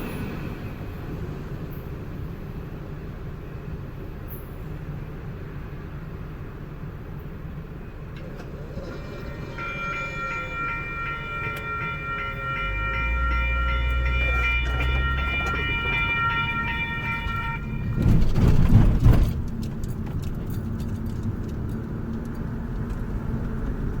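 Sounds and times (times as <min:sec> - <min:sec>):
train rushing past: 0:00.0 - 0:19.6
train rumble: 0:00.0 - 0:24.0
pulsing warning tone: 0:09.1 - 0:18.3.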